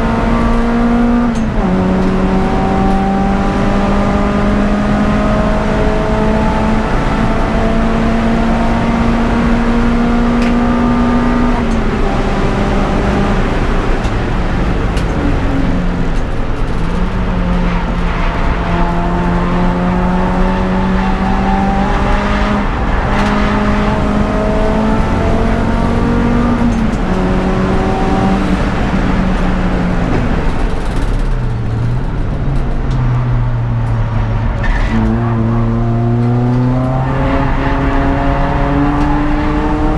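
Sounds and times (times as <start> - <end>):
car engine revving hard: 0.0 - 14.1, 17.0 - 30.8, 34.6 - 39.9.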